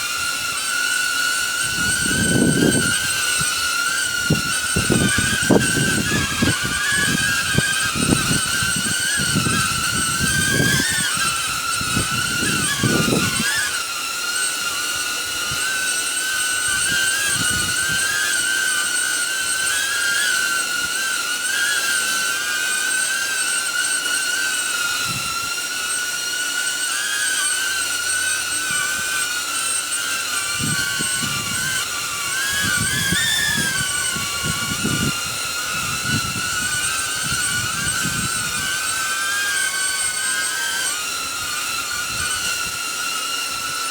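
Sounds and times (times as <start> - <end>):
drone propellers whining: 0.0 - 43.9
wind buffeting microphone: 1.6 - 13.7, 16.7 - 18.2, 30.5 - 39.0.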